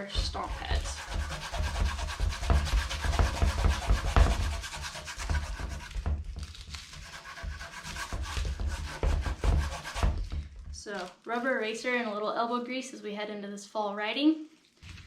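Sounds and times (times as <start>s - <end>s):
low handling bumps: 0.0s - 6.7s, 7.4s - 10.9s
eraser scrubbing rubber pad: 0.0s - 10.4s.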